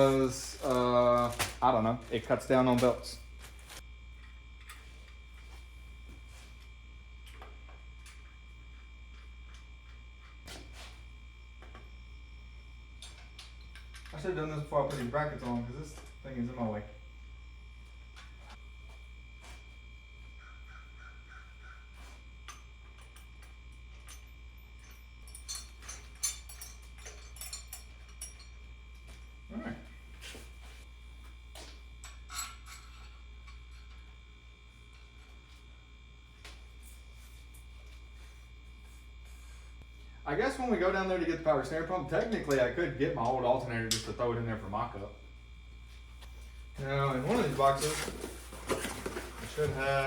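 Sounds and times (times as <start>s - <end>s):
low electrical hum: 0.0s - 50.0s
thin high whine: 0.0s - 50.0s
clicks and knocks of parts handled: 13.0s - 16.2s.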